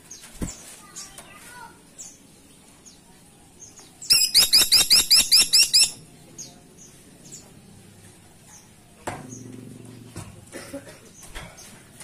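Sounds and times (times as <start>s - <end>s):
woodpecker calls: 4.1s - 6.0s.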